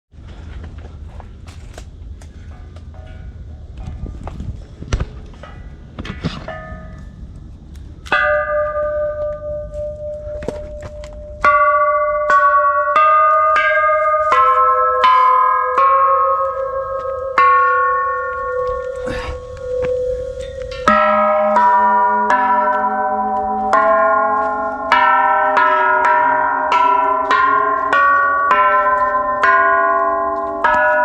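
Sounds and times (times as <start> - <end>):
metal bells ringing: 6.4 - 7.3, 8.0 - 31.0.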